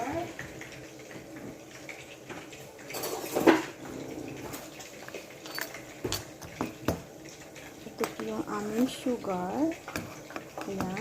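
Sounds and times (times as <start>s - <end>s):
kitchen utensils clinking: 1.9s - 11.0s
utensils clattering: 2.8s - 6.9s
spoon against dishes: 9.7s - 11.0s.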